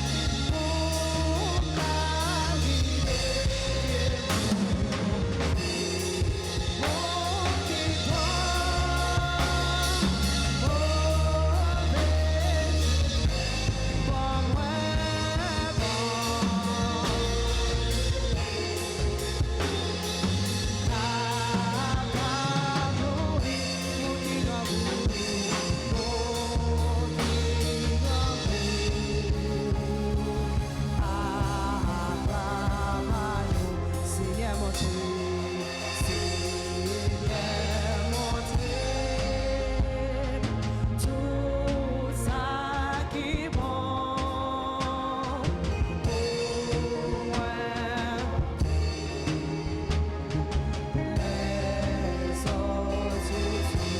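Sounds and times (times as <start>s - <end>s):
drum kit: 0.0s - 53.9s
heavy bass: 0.0s - 53.9s
live band playing gospel song: 0.0s - 53.9s.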